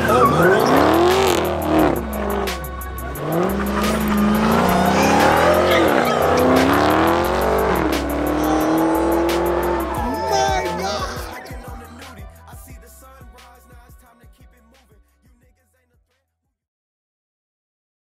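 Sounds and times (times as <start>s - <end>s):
car engine revving hard: 0.0s - 11.4s
rap beat with deep bass: 0.0s - 16.4s.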